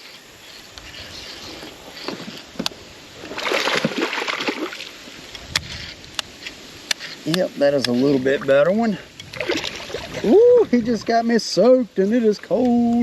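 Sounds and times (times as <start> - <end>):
fish splashing at water surface: 3.2 - 5.0, 9.3 - 10.3.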